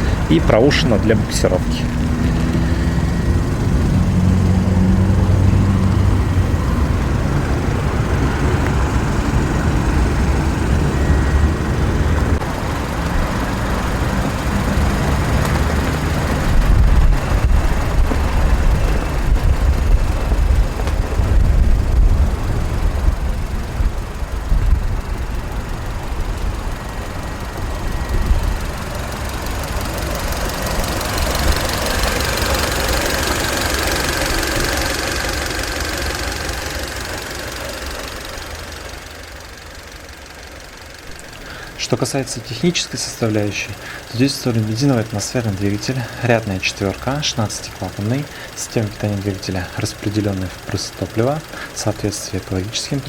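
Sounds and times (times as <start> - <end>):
vehicle engine idling: 0.0 - 53.0.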